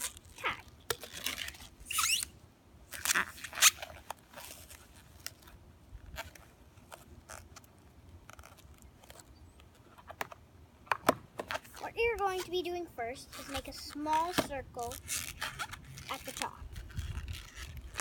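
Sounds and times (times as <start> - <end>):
balloon squeaking and rubbing: 0.0 - 2.3, 2.9 - 5.1, 11.5 - 12.5, 13.2 - 18.0.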